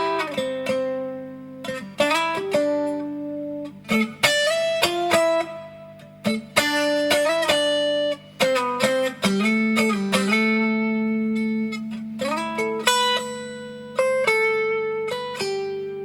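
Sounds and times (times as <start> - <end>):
electric guitar notes and chords: 0.0 - 16.0.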